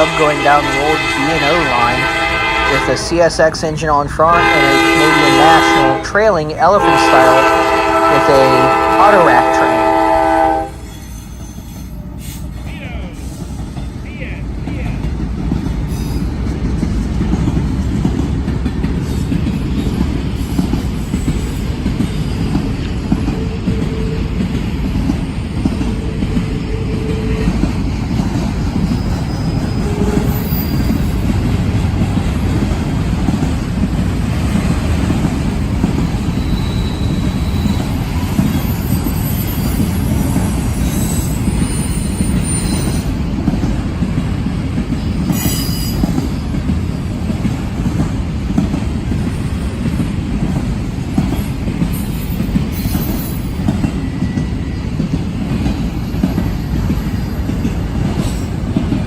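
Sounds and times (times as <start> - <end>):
freight train rumbling on rails: 0.0 - 59.0
high wheel squeal: 10.8 - 12.5, 28.8 - 31.2, 36.3 - 43.1, 45.1 - 46.4.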